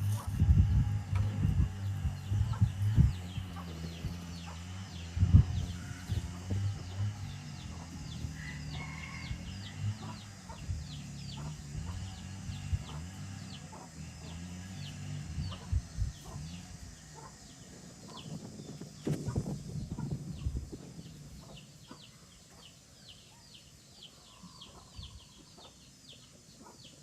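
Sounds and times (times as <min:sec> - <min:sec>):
chicks peeping: 0:00.0 - 0:27.0
steady low hum: 0:00.0 - 0:27.0.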